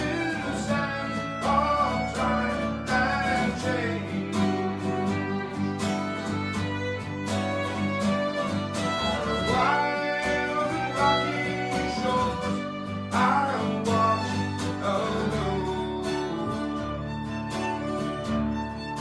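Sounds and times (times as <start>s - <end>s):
fiddle playing folk melody: 0.0s - 19.0s
strummed acoustic guitar: 0.0s - 19.0s.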